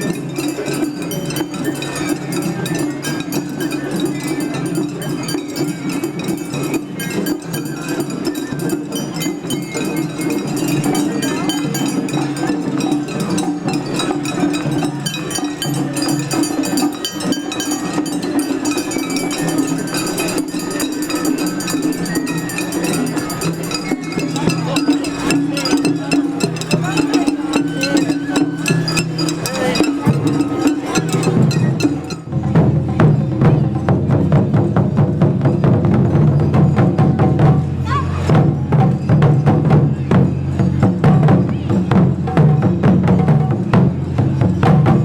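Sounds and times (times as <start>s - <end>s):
metallic clinks and strikes: 0.0s - 33.6s.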